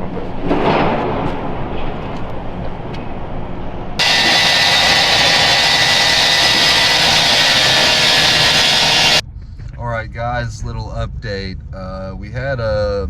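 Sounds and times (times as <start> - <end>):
saw engine running: 4.0 - 9.2
saw screeching through steel: 4.0 - 9.2.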